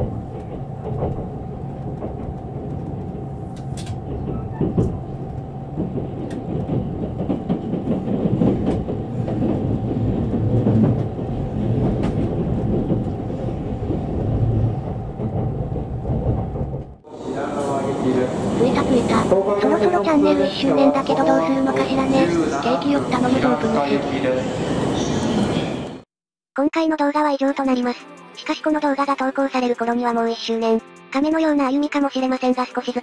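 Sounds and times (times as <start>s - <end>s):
rail joint clicks and knocks: 0.0s - 17.0s
train wheels rumbling on rail: 0.0s - 26.0s
passing train: 0.0s - 26.1s.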